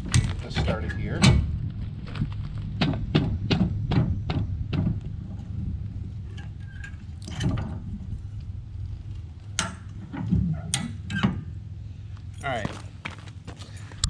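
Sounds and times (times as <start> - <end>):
knocks: 2.8 - 5.1.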